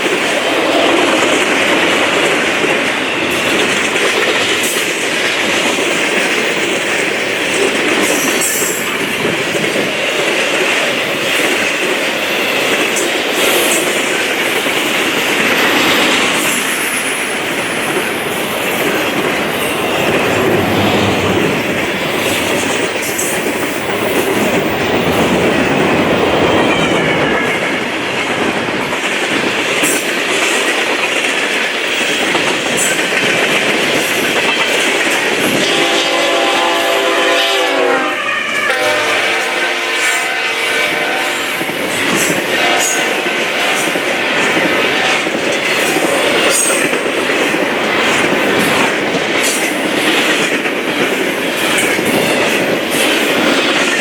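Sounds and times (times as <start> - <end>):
clickety-clack over rail joints: 0.0 - 37.5, 38.6 - 54.0
train wheels rushing on rails: 0.0 - 54.0.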